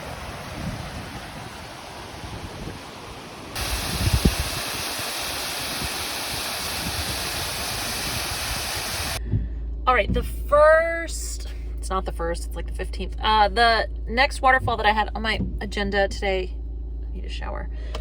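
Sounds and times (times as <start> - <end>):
waterfall rushing: 0.0 - 9.2
wind buffeting microphone: 0.0 - 9.5.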